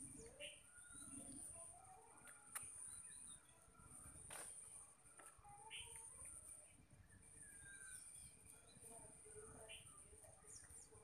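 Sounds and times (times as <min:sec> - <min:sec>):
bird chirps and calls: 0:00.0 - 0:01.6, 0:05.5 - 0:06.4, 0:07.2 - 0:11.0.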